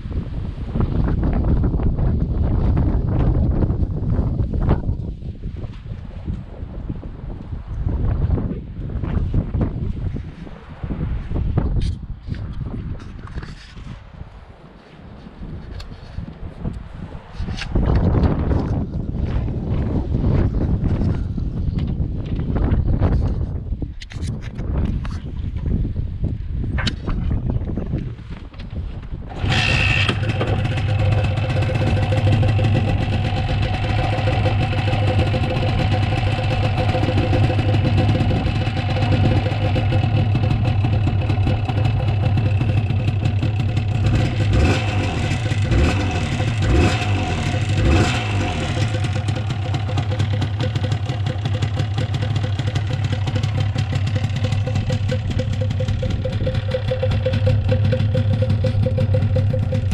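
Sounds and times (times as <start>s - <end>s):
motorcycle engine idling: 29.3s - 59.9s.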